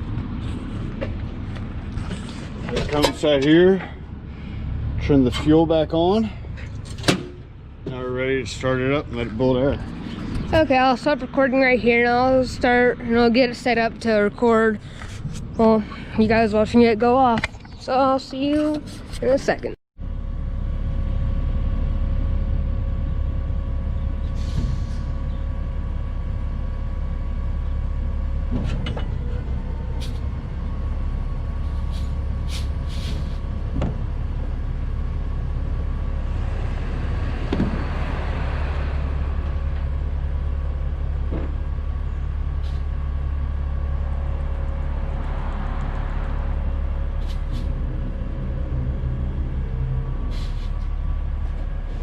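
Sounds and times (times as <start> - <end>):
truck diesel engine running: 0.0 - 52.0.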